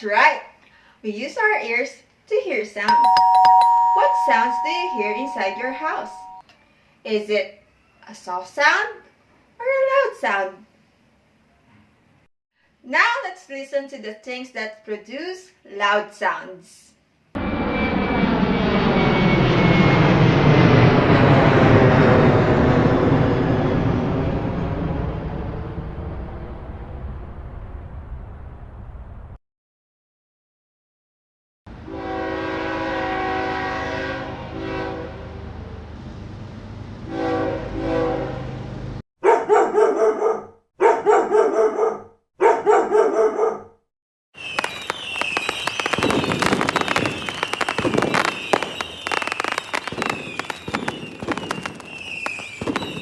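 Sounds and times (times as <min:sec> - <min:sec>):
airplane engine roar: 0:17.4 - 0:29.2
train horn: 0:31.7 - 0:35.7, 0:37.0 - 0:38.8
dog barking: 0:39.2 - 0:43.8
firecrackers crackling: 0:44.4 - 0:53.0.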